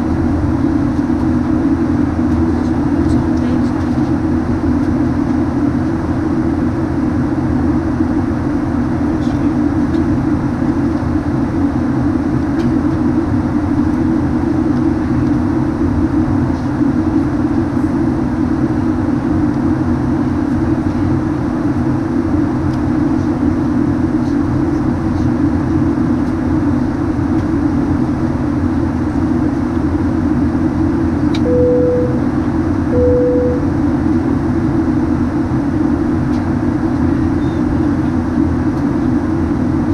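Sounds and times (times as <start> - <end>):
airliner cabin engine hum: 0.0 - 39.9
cabin chime tones: 31.5 - 32.3, 33.0 - 33.6.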